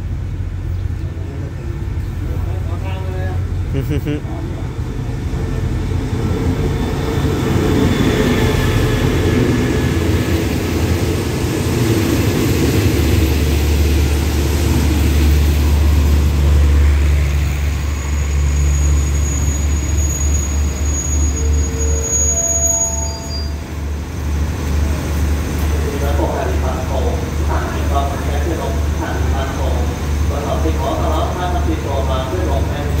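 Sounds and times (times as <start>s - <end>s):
diesel locomotive rumble: 0.0s - 33.0s.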